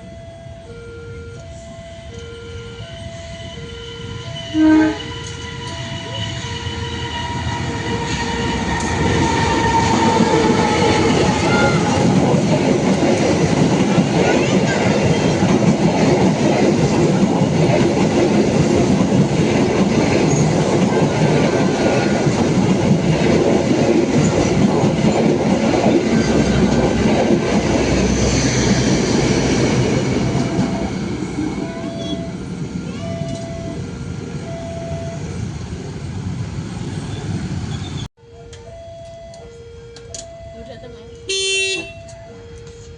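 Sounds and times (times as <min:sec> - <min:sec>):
level crossing warning beeps: 0:00.0 - 0:07.6, 0:30.6 - 0:35.5, 0:37.8 - 0:42.9
train wheels rumbling on rails: 0:01.3 - 0:38.1.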